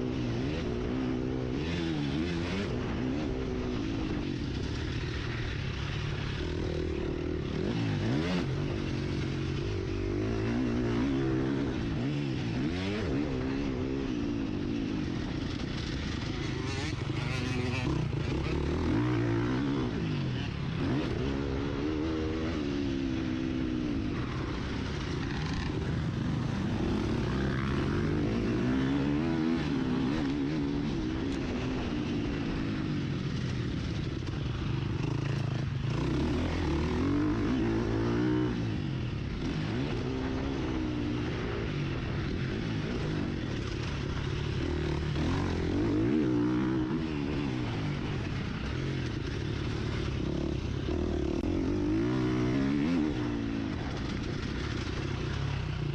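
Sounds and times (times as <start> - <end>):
motocross engine revving: 16.2 - 19.9.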